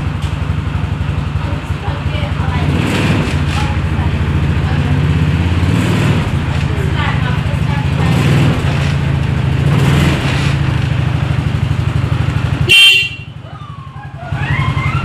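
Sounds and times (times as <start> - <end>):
car engine running: 0.0 - 15.0
short horn toot: 12.7 - 13.3.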